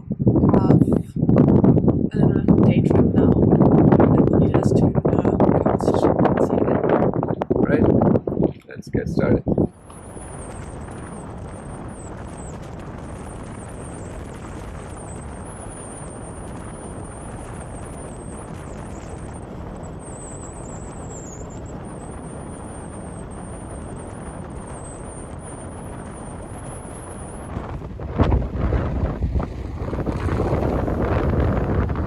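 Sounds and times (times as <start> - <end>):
faint high whine: 0.0 - 32.0
wind and road noise: 0.0 - 32.0.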